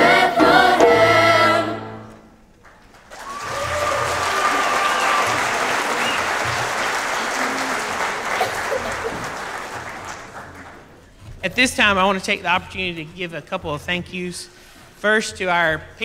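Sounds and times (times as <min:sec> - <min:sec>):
audience applauding: 0:02.5 - 0:11.1.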